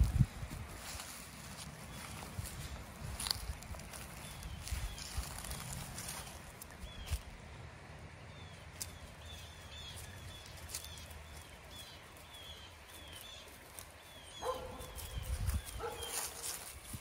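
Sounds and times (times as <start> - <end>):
puppies moving through dry leaves: 0.0 - 7.3, 8.7 - 17.0.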